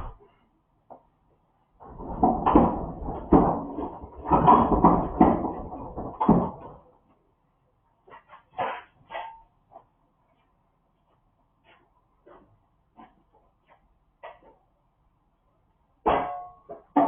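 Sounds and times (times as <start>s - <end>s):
refrigerator clattering and knocking: 1.8s - 6.9s.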